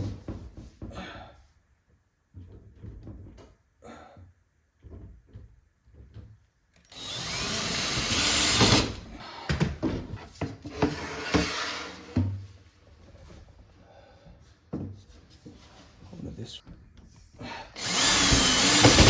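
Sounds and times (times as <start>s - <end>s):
power drill driving screw into wood: 6.9s - 9.1s, 17.8s - 19.0s.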